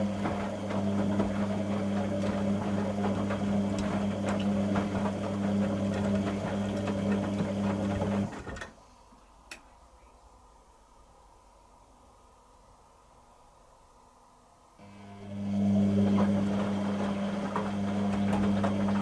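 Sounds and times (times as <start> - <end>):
washing machine pump running: 0.0 - 8.8, 14.8 - 19.0
mains hum: 0.0 - 19.0.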